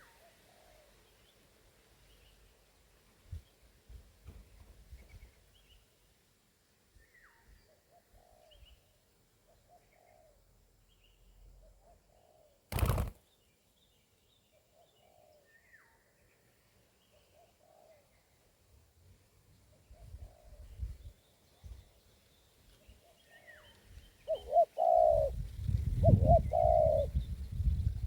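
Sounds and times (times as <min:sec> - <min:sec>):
dove cooing softly: 0:00.0 - 0:01.1, 0:07.6 - 0:08.9, 0:09.5 - 0:10.7, 0:11.4 - 0:13.1, 0:14.7 - 0:15.7, 0:17.1 - 0:18.4, 0:19.7 - 0:21.0, 0:23.0 - 0:27.4
small birds chirping: 0:19.3 - 0:28.0.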